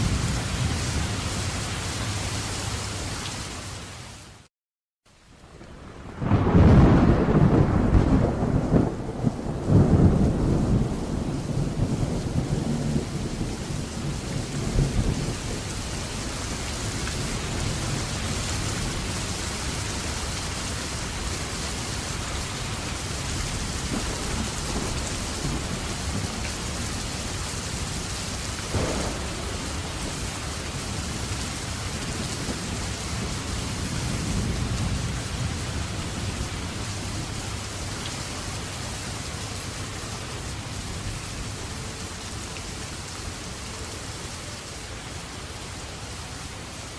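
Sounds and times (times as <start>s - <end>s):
heavy rain: 0.0s - 4.5s, 5.1s - 46.9s
thunder rumbling low: 5.6s - 20.0s, 22.9s - 28.0s, 28.6s - 37.8s.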